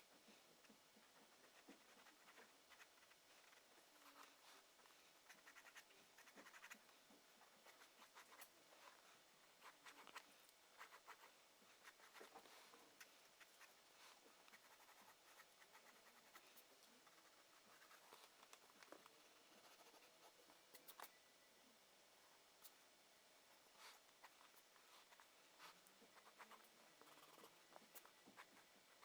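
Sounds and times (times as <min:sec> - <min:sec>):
drawing tool scratching on paper: 0:05.2 - 0:06.8, 0:09.6 - 0:18.4, 0:23.9 - 0:28.7.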